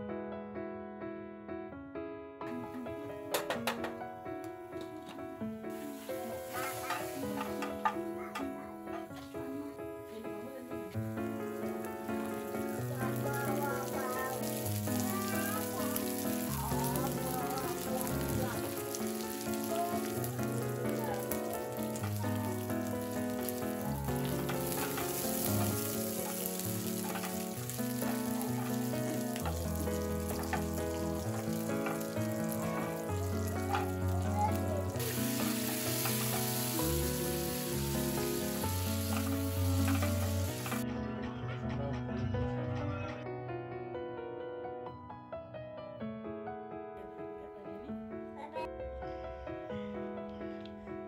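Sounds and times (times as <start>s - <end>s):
fish sizzling in oil: 5.7s - 8.1s, 10.8s - 40.8s
spatula stirring in pan: 5.8s - 8.0s, 12.3s - 40.8s.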